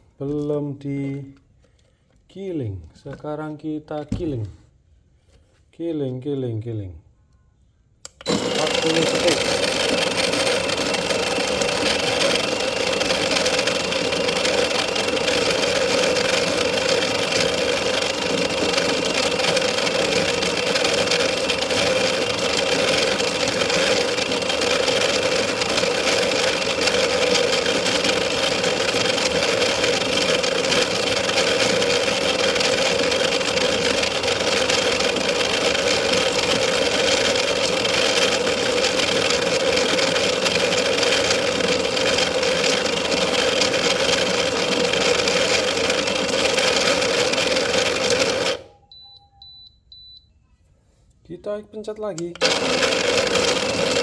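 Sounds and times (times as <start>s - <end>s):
electric coffee grinder grinding: 8.1s - 48.7s, 52.3s - 54.0s.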